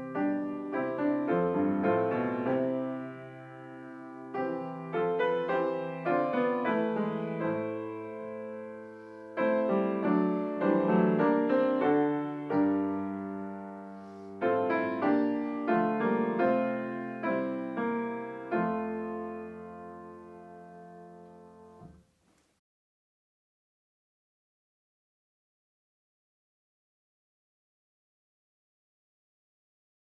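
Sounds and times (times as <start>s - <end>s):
slow gentle piano chords: 0.0s - 22.0s.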